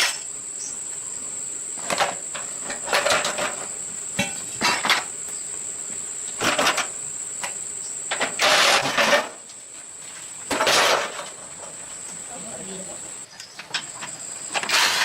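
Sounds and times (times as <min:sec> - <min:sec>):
metal parts clattering and scraping: 0:01.9 - 0:05.1, 0:08.1 - 0:09.4, 0:10.5 - 0:11.5, 0:13.3 - 0:15.0.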